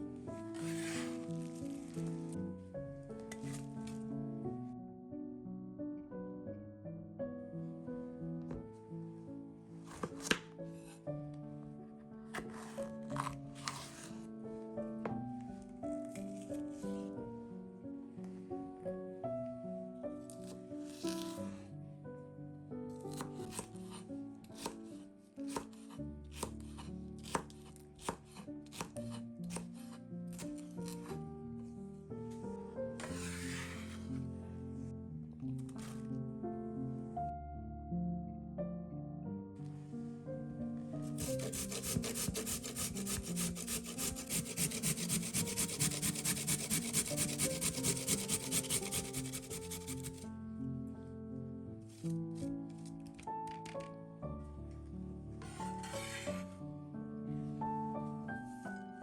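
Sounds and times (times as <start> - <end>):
knife chopping on cutting board: 9.9 - 10.4, 23.1 - 24.0, 24.6 - 24.8, 25.5 - 29.7, 41.2 - 50.2
rapid food scraping strokes: 41.2 - 50.2.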